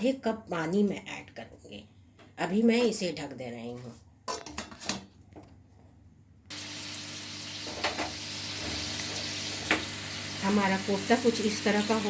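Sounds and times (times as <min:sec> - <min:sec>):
food sizzling in a pan: 0:06.5 - 0:12.0.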